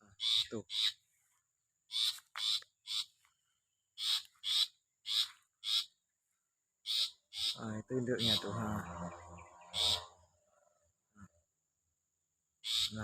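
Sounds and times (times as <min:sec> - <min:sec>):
bird giving harsh rasping calls: 0:00.1 - 0:01.0, 0:01.9 - 0:03.2, 0:04.0 - 0:06.0, 0:06.8 - 0:10.3, 0:12.6 - 0:13.0.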